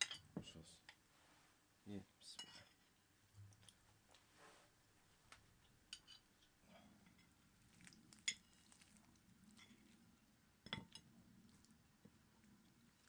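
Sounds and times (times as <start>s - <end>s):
cutlery clinking against dishes: 5.9s - 6.3s.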